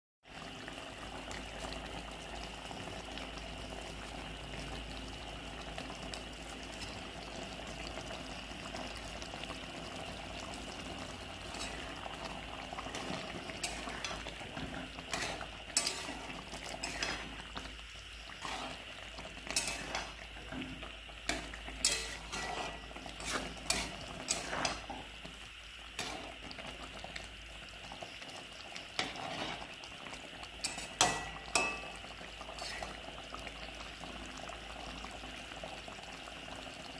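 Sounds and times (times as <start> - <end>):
chicken sizzling and bubbling in pot: 0.2 - 36.9
spoon clinking and scraping pot: 11.4 - 12.0, 12.9 - 17.7, 18.4 - 20.6, 21.3 - 25.0, 26.0 - 26.4, 29.0 - 29.7, 30.6 - 33.0.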